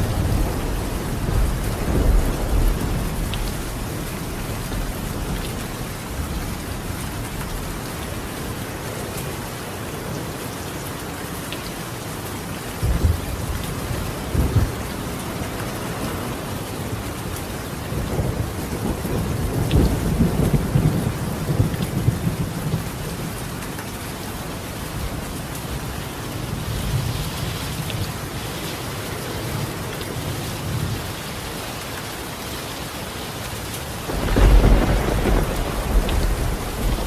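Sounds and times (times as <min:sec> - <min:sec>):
thunder rumbling: 0:00.0 - 0:08.3, 0:12.8 - 0:16.1, 0:17.9 - 0:23.3, 0:34.0 - 0:37.0
rain on a tiled roof: 0:00.0 - 0:37.0.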